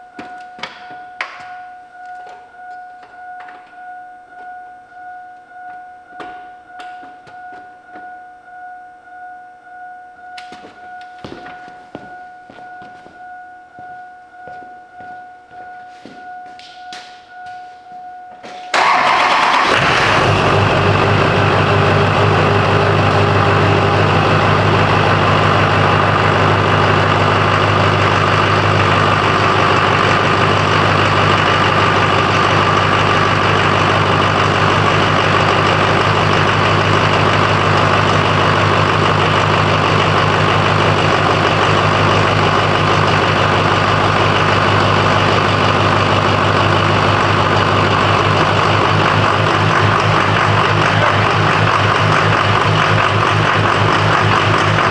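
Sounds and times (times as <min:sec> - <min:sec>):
diesel engine idling: 0:18.7 - 0:54.9.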